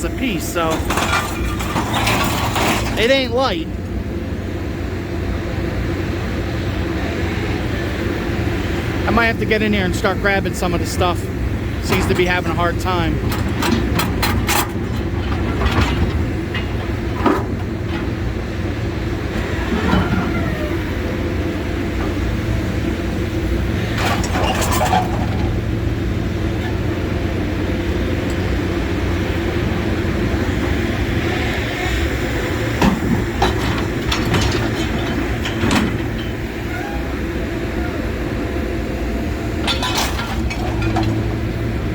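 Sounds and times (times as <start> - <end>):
diesel engine running under load: 0.0 - 41.9
metal clanks: 0.2 - 3.2, 11.8 - 20.7, 23.8 - 25.7, 32.7 - 37.0, 39.5 - 41.6.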